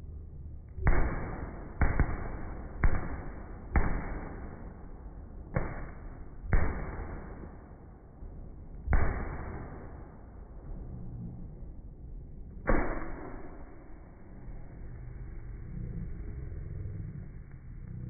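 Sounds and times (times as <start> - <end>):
fireworks bangs with rumbling echo: 0.8 - 7.8, 8.7 - 10.5, 12.7 - 14.1.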